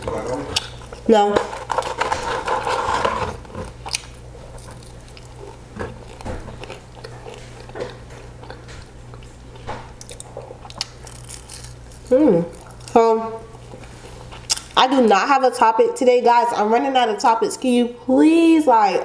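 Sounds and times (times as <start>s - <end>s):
chewing french fries: 0.0s - 14.8s
low steady hum: 0.0s - 19.0s.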